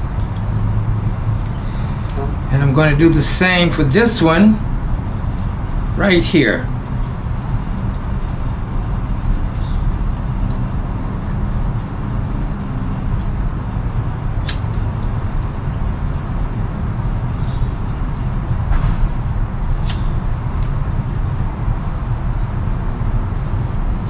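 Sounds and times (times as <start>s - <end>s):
low outdoor rumble: 0.0s - 24.0s
sharp clicks: 14.4s - 14.8s.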